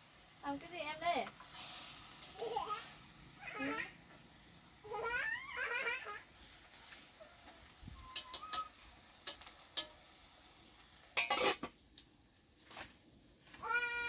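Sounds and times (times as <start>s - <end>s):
kitchen utensils and dishes clinking: 8.1s - 10.0s, 11.1s - 11.7s
dishes clattering: 11.2s - 11.8s.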